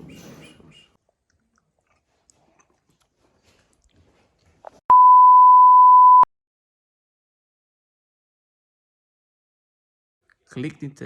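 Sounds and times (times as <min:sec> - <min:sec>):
loud electronic beep: 0:04.9 - 0:06.3.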